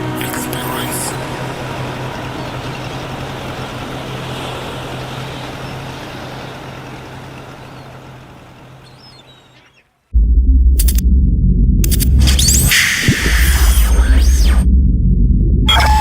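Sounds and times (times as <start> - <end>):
wind and water noise: 0.0 - 10.1, 12.7 - 14.7
boat engine humming: 0.0 - 16.0
loud deep sound: 10.2 - 16.0.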